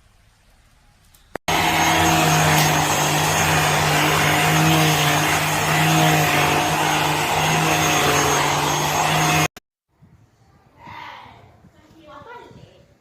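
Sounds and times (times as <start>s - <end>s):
vacuum cleaner running: 1.5s - 9.6s.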